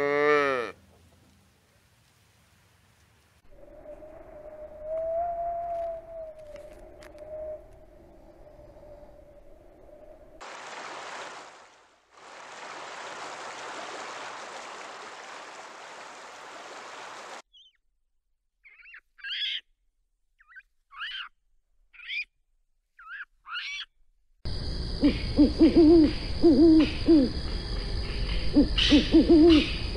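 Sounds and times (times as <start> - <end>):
owl hooting: 3.6 - 9.3, 25.0 - 27.5, 28.4 - 29.9.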